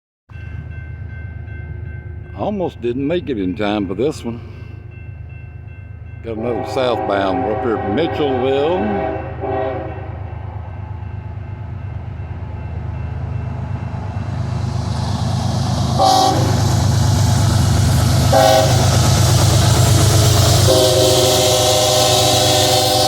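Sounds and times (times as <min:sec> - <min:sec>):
locomotive rumble and rail noise: 0:00.3 - 0:23.0
locomotive horn blasts: 0:06.4 - 0:10.2, 0:16.0 - 0:16.7, 0:18.3 - 0:18.9, 0:20.6 - 0:23.0.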